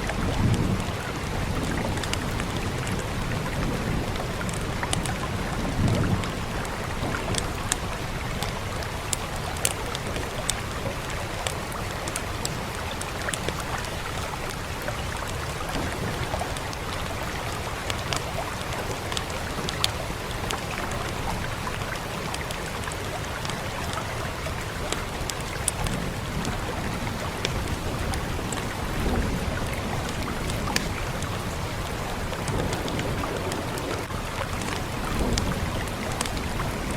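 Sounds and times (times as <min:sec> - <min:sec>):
rain hissing: 0:00.0 - 0:36.9
wood fire crackling and popping: 0:00.0 - 0:36.9.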